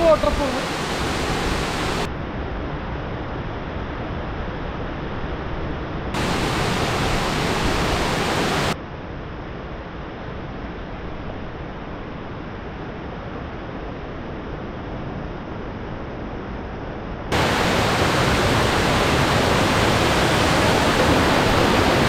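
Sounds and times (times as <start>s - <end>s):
small waterfall rushing: 0.0s - 2.1s, 6.2s - 8.8s, 17.3s - 22.0s.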